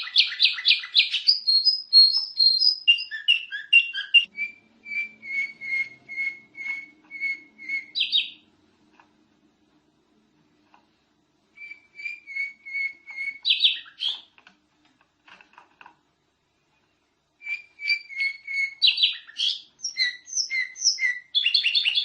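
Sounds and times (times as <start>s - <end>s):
canary singing: 0.0s - 8.6s, 11.5s - 14.4s, 17.4s - 22.0s.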